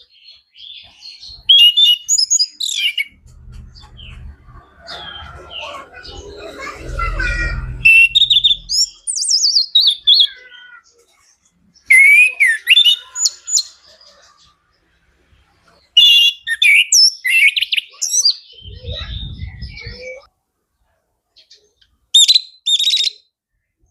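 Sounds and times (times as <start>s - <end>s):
thrush singing whistles and trills: 1.2s - 10.4s, 16.0s - 20.3s.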